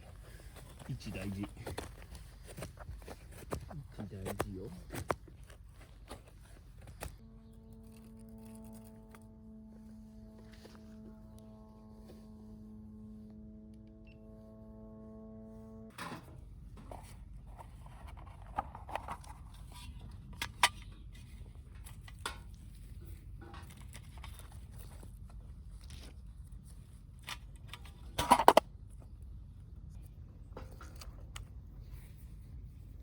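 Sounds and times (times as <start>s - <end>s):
low steady rumble: 0.0s - 33.0s
held musical tone: 7.2s - 15.9s.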